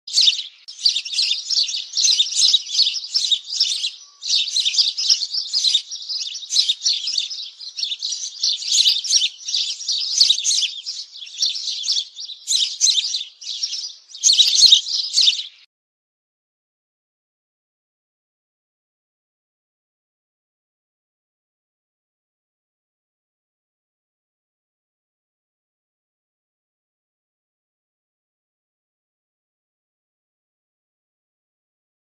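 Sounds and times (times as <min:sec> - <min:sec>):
songbirds chirping: 0:00.1 - 0:15.7.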